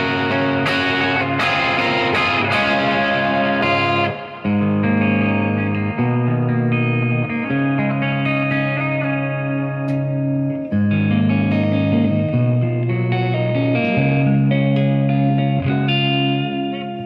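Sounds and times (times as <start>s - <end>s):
overdriven electric guitar chords: 0.0s - 17.0s.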